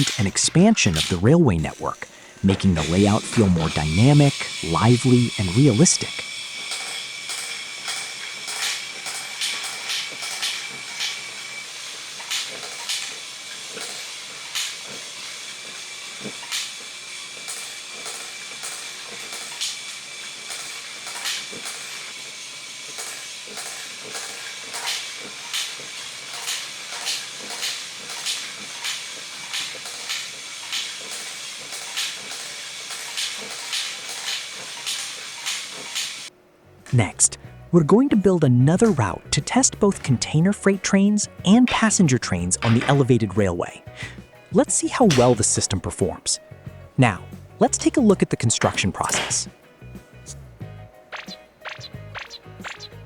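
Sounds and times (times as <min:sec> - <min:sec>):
irregular clicks: 0:00.0 - 0:36.3
toy trains running on plastic track: 0:00.0 - 0:36.3, 0:37.2 - 0:46.4, 0:47.6 - 0:49.6
thin steady whine: 0:00.0 - 0:53.0.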